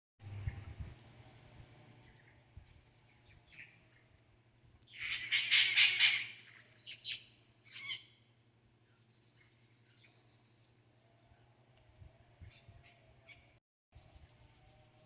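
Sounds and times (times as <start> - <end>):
bird rasping squawk: 5.0 - 6.4.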